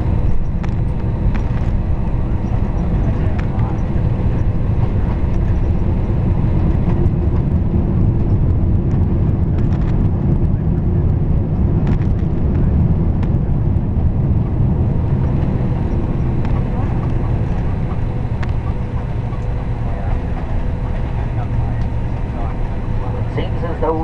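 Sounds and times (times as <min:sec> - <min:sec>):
aircraft cabin engine rumble: 0:00.0 - 0:24.0.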